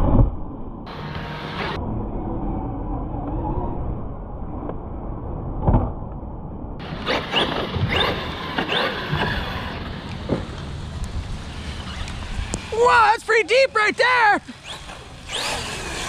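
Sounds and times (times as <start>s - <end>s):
low rumble: 0.0s - 12.8s
electric motors whining: 0.9s - 4.8s, 6.8s - 13.0s, 13.7s - 16.0s.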